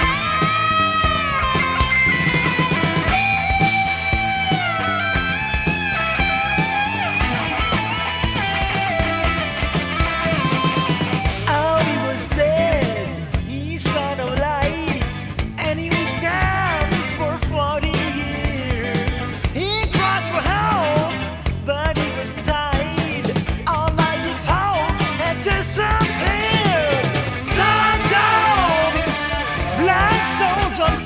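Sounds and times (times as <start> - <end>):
electric lead guitar bending notes: 0.0 - 13.2, 23.8 - 31.0
bass and drums: 0.0 - 31.0.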